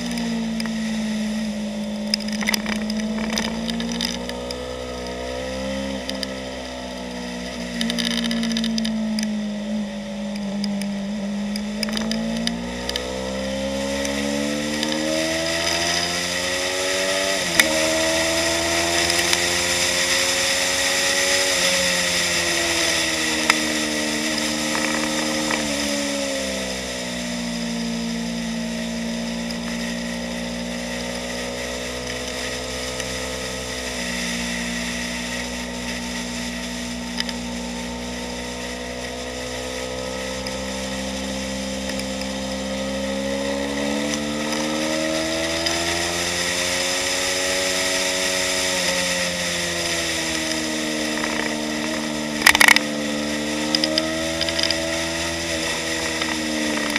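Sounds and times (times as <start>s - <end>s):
motorcycle engine at speed: 0.0s - 56.9s.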